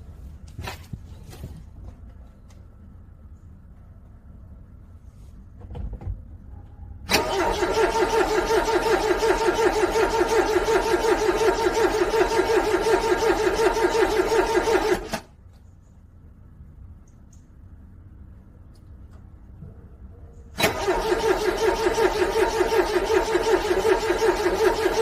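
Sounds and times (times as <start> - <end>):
car engine cranking on starter: 7.1 - 15.3, 20.6 - 25.0.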